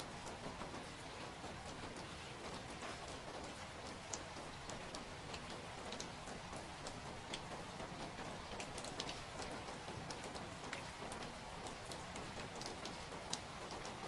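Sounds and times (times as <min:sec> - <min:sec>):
rain drops pattering: 0:00.0 - 0:14.0.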